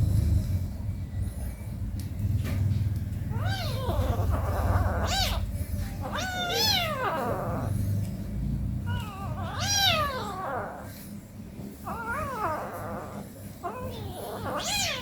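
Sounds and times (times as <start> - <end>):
kitten mewing: 3.3 - 7.9, 8.8 - 11.0, 11.8 - 15.0.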